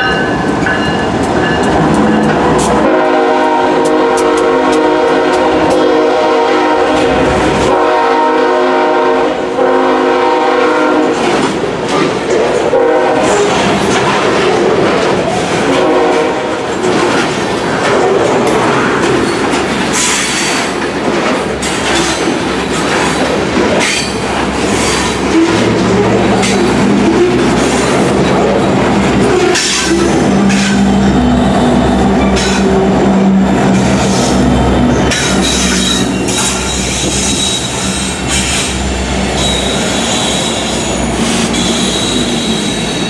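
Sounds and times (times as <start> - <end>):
locomotive air horn: 2.7 - 11.3, 12.7 - 13.7, 15.6 - 16.7, 28.9 - 38.7
train wheels clattering over rails: 11.1 - 43.0.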